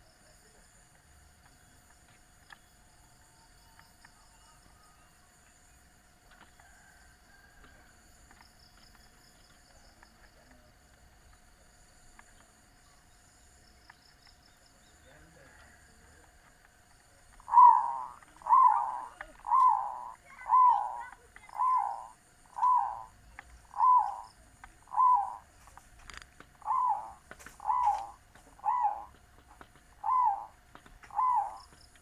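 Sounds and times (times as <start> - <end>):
dove cooing: 17.3 - 25.5, 26.6 - 32.0.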